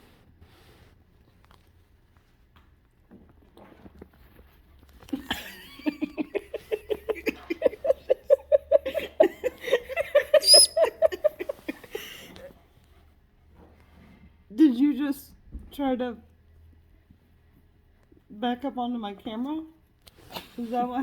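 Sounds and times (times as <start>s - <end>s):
person laughing hard: 5.2s - 12.3s
high chirp: 10.3s - 11.2s.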